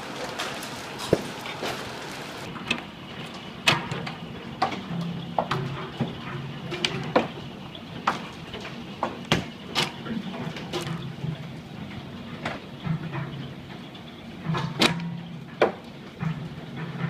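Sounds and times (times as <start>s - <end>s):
hailstones cracking on hard surfaces: 0.0s - 2.5s
steady hiss of hail: 0.0s - 2.5s.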